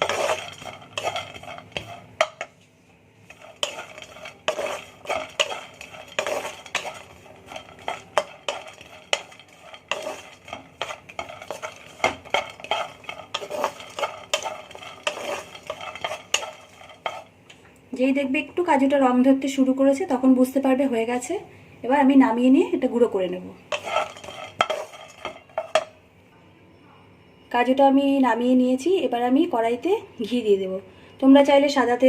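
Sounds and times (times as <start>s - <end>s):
spatula scraping nuts in a pan: 0.0s - 2.6s, 3.2s - 17.4s, 23.7s - 26.0s.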